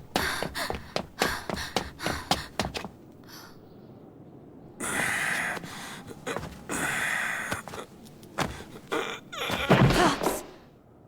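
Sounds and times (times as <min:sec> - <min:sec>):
heavy breathing gasps: 0:00.0 - 0:03.6, 0:04.8 - 0:07.8.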